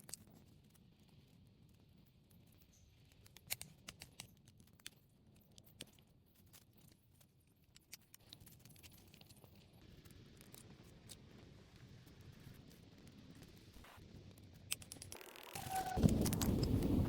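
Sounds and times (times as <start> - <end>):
faint sharp clicks and snaps: 2.5 - 6.1.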